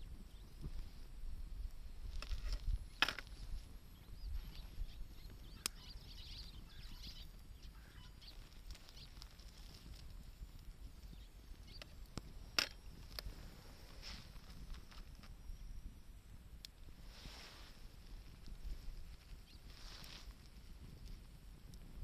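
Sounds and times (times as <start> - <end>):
wood fire crackling: 0.0 - 22.0
sharp pops from fire: 1.7 - 7.5, 8.2 - 15.4
faint bird chirps: 2.2 - 16.3, 17.2 - 21.2.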